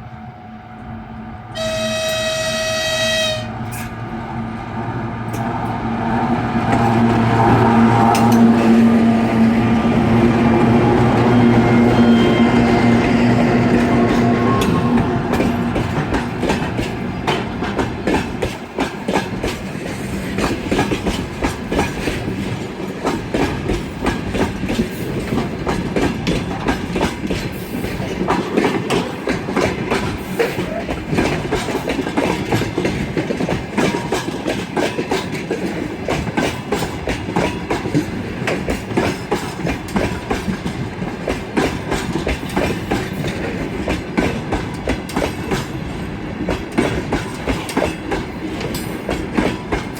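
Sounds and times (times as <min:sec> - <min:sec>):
steady train rumble: 0:00.0 - 0:49.9
train wheels clattering over rail joints: 0:10.0 - 0:49.9.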